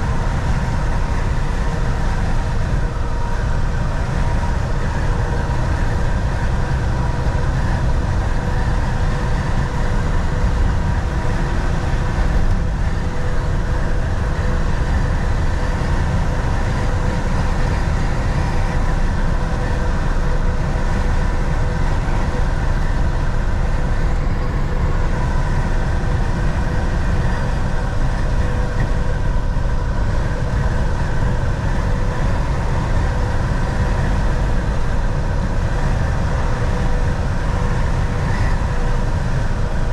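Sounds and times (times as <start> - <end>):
road and tyre noise: 0.0 - 39.9
truck engine drone: 0.0 - 39.9.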